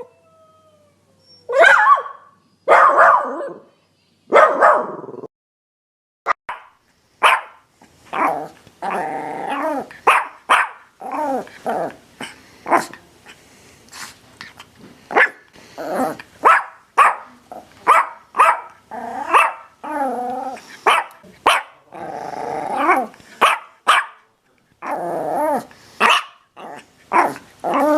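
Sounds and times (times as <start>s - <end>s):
dogs barking: 1.5s - 3.6s, 4.3s - 5.0s, 6.5s - 7.6s, 10.0s - 10.9s, 16.4s - 19.7s, 20.8s - 21.8s, 23.4s - 24.2s, 26.0s - 26.4s.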